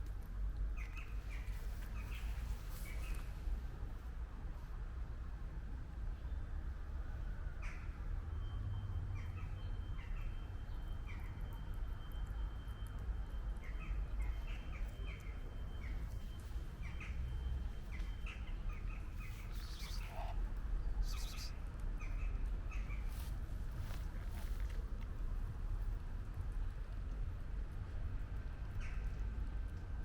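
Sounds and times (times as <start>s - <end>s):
steady low rumble: 13.5s - 30.0s
small birds chirping: 13.6s - 23.3s.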